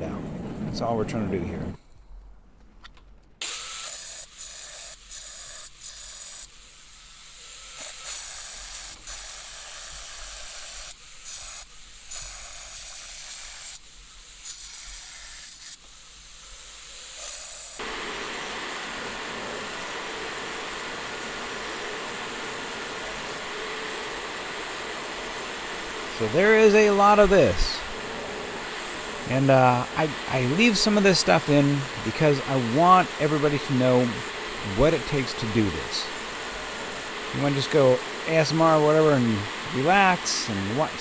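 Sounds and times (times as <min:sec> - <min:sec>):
grinding steel hiss: 0:03.4 - 0:41.0.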